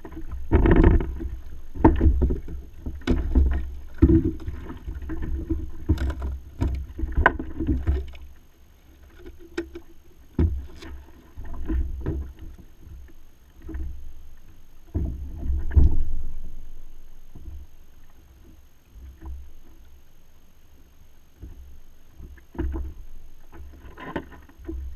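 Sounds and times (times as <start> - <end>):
knocks on kayak: 15.6 - 16.2.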